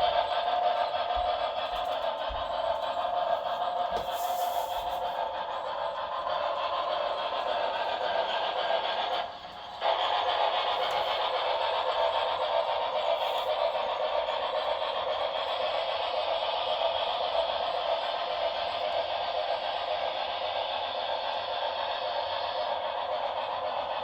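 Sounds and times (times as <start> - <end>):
model steam locomotive hissing: 0.0 - 24.0.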